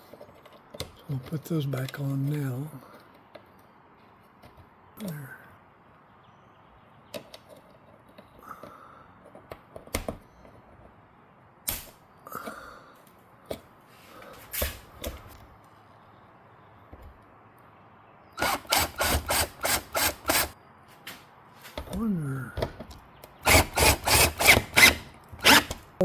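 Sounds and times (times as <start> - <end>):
handling clicks and knocks: 7.1 - 8.4
screwdriver bursts: 18.4 - 20.6, 23.4 - 25.8.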